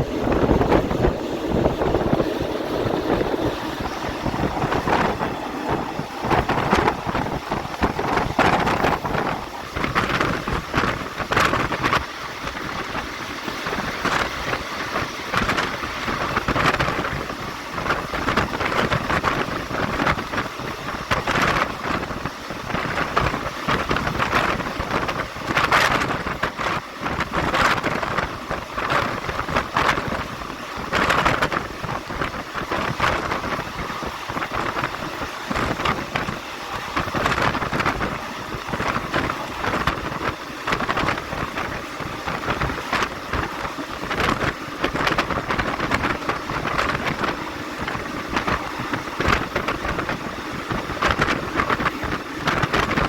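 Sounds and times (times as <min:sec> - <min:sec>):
wheel-on-rail noise: 0:00.0 - 0:53.0
wind rushing past train: 0:00.0 - 0:53.0.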